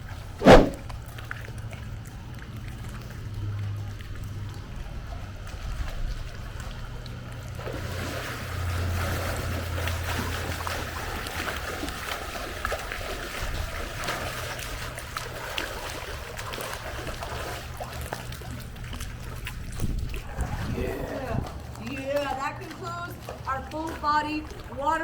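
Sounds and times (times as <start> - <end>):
pool water splashing: 1.9 - 25.0.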